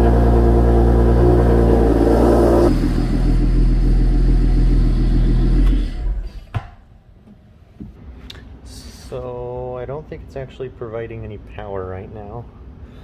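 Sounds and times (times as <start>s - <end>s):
car engine running: 0.0s - 6.5s.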